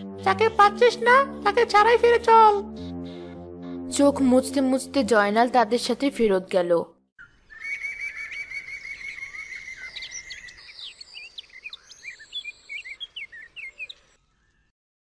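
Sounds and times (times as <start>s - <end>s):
songbirds trilling and chirping: 7.2s - 14.7s.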